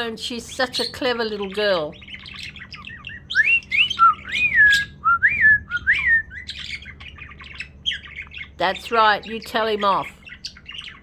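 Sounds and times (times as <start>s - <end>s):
pet bird chattering: 0.0s - 5.0s, 6.2s - 11.0s
bird whistled notes: 2.4s - 8.5s.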